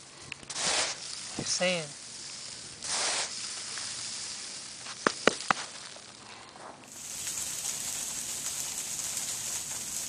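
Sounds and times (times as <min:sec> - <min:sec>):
sleet falling and ticking: 0:03.4 - 0:10.0.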